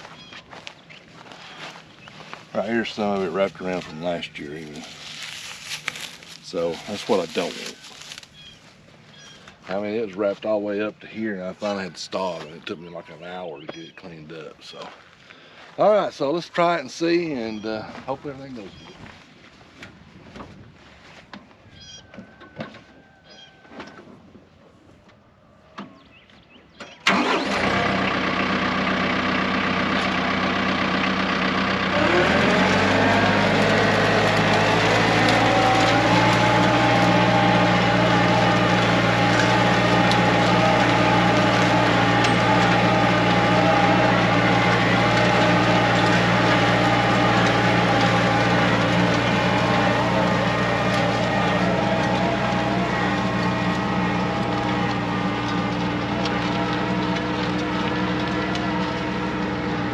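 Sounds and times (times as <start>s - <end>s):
tractor diesel engine: 0.0s - 15.0s, 27.0s - 59.9s.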